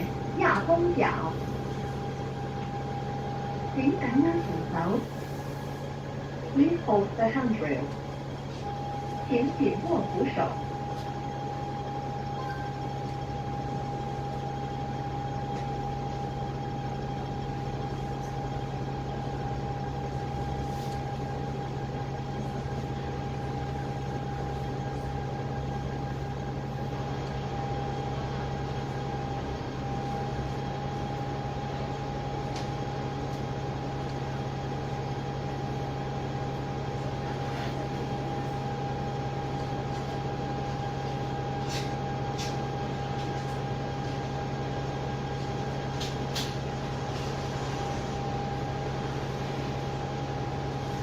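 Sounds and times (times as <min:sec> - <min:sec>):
bus engine low hum: 0:00.0 - 0:51.0
steady high whine: 0:00.0 - 0:51.0.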